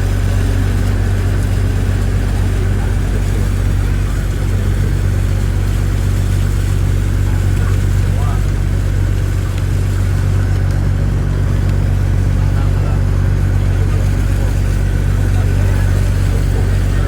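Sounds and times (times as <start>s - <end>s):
engine droning steadily: 0.0s - 17.0s.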